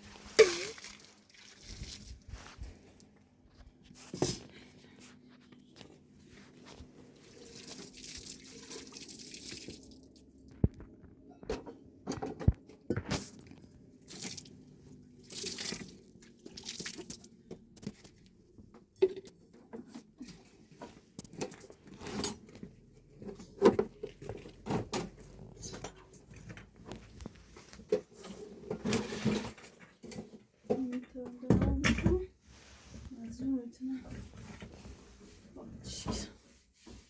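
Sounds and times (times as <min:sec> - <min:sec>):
water dripping and splashing: 0:00.2 - 0:02.3, 0:07.3 - 0:10.5, 0:14.1 - 0:14.6, 0:15.2 - 0:17.3.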